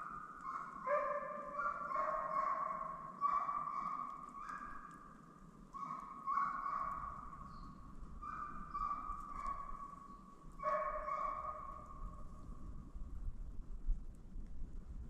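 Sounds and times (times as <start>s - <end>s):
hound baying: 0.0s - 4.7s, 10.6s - 11.8s.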